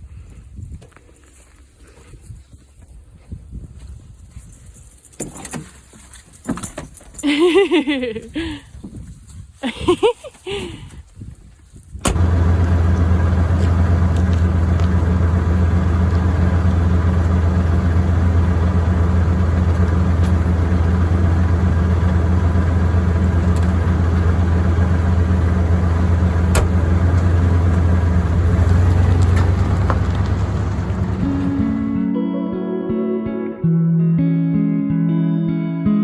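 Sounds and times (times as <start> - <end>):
vehicle engine running: 12.1 - 32.1.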